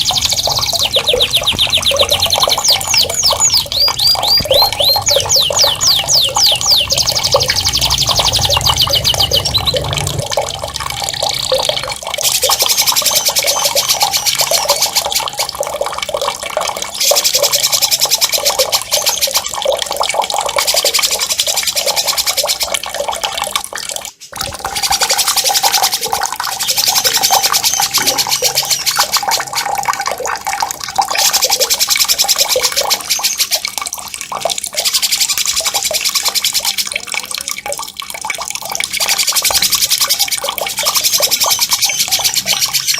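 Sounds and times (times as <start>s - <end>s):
songbird trilling: 0.0s - 10.2s
running splashing water: 0.0s - 42.9s.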